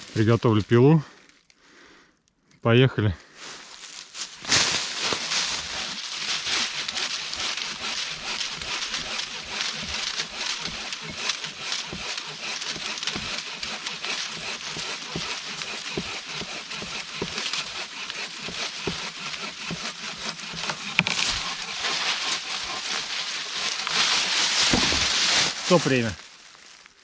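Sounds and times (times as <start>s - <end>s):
hand saw cutting wood: 4.8s - 25.6s.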